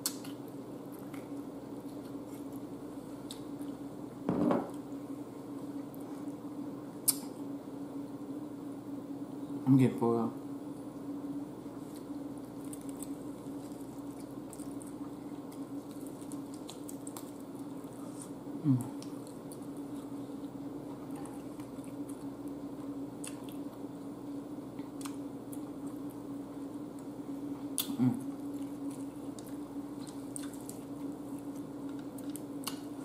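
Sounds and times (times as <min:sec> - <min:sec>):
steady low hum: 0:00.0 - 0:33.0
person chewing chicken wings: 0:11.8 - 0:23.8, 0:27.6 - 0:33.0.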